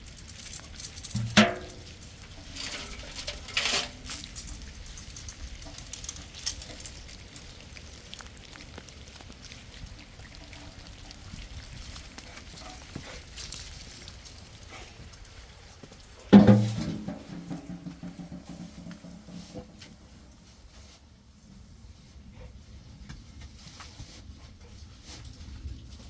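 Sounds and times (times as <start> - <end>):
rain pattering: 0.0 - 20.6.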